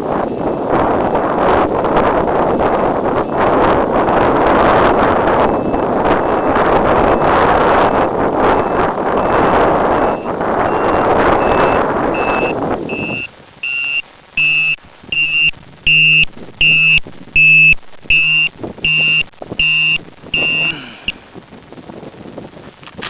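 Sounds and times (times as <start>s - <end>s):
wind buffeting microphone: 0.0s - 13.4s, 14.2s - 23.0s
high electronic beeps: 10.0s - 21.2s.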